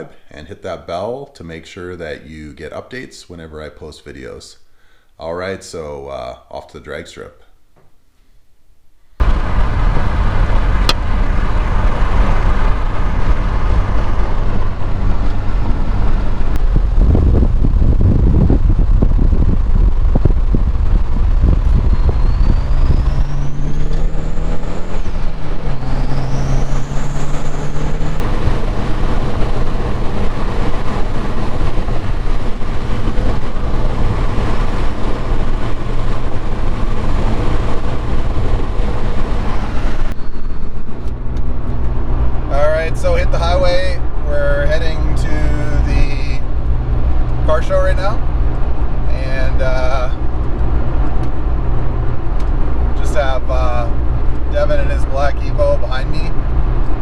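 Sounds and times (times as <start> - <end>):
car engine: 9.2 - 57.0
road noise: 9.2 - 57.0
faint rising whistle: 21.6 - 28.2, 40.0 - 41.4.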